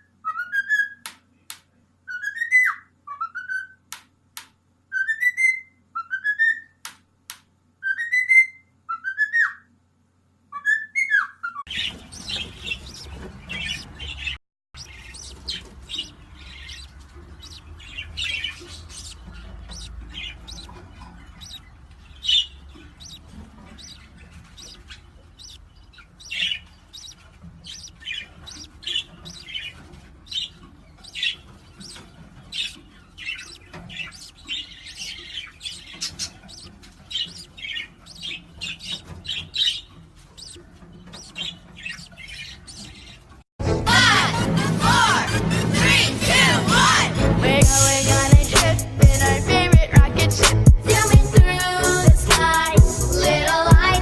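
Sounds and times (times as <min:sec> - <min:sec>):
bird chirping: 0:10.5 - 0:43.4.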